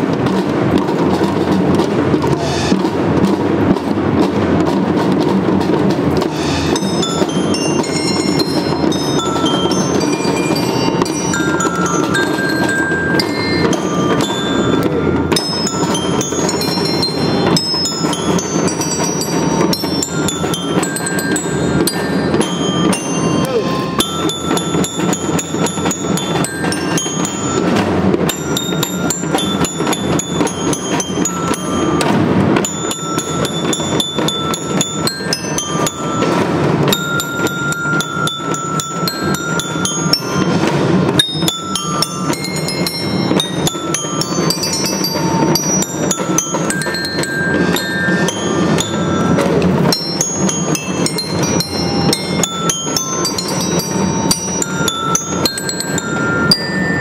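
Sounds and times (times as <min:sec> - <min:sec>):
drums beating: 0:00.0 - 0:57.0
bell lyre ringing notes: 0:06.5 - 0:57.0.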